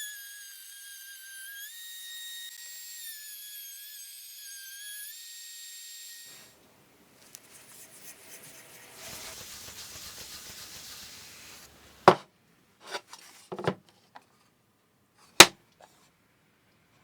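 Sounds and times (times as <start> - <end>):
wooden box rubbing: 9.0 - 12.2, 12.8 - 13.8
wooden clacks: 12.0 - 14.2.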